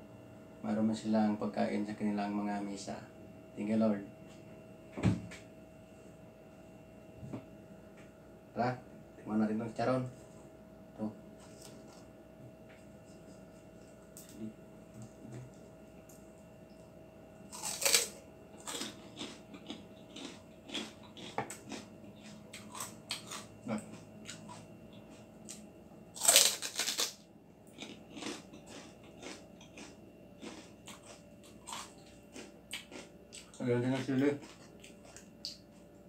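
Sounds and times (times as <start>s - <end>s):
loud crunching bites: 17.5s - 24.6s, 25.5s - 35.6s
crackling chewing: 17.5s - 25.6s, 26.2s - 36.0s.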